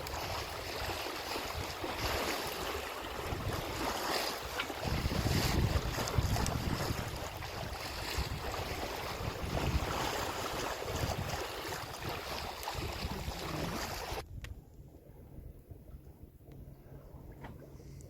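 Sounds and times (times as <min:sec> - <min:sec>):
water rushing along hull: 0:00.0 - 0:14.3
wind buffeting microphone: 0:00.0 - 0:16.1.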